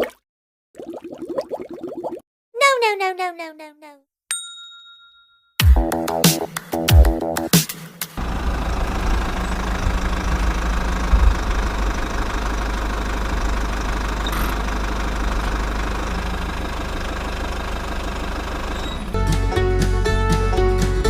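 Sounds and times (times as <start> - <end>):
small diesel engine running: 8.2 - 21.0.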